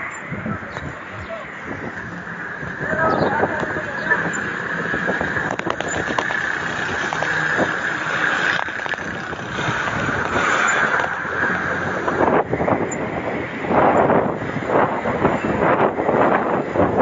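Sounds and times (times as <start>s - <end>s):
road noise: 0.0s - 17.0s
wind buffeting microphone: 0.0s - 17.0s
bicycle clicks and rattles: 1.8s - 14.7s.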